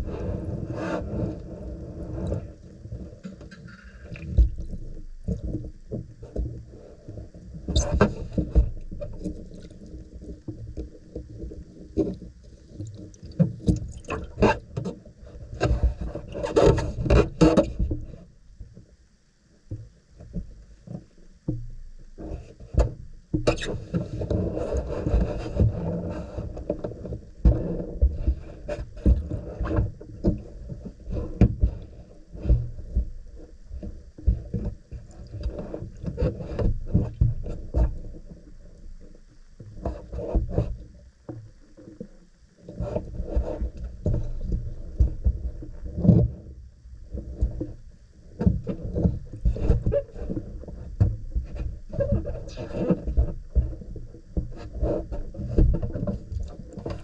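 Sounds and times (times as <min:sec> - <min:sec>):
light knocks and scrapes: 0:00.1 - 0:18.8, 0:19.7 - 0:57.0
objects moved and rubbed: 0:23.8 - 0:38.3.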